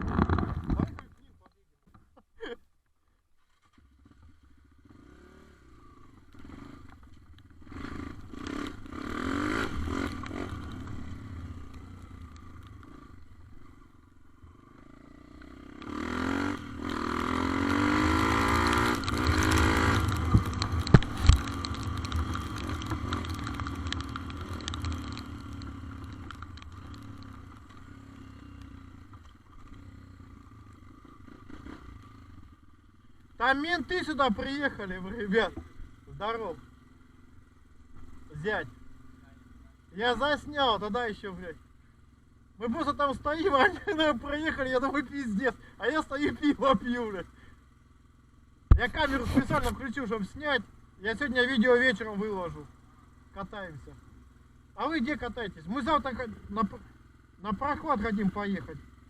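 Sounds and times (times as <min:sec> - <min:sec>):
small motorcycle engine revving: 0:03.6 - 0:33.0.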